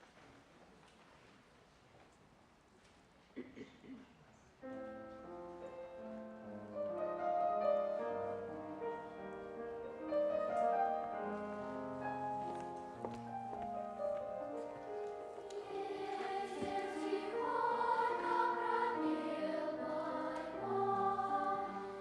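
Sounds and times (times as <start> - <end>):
slow piano playing: 4.6 - 22.0.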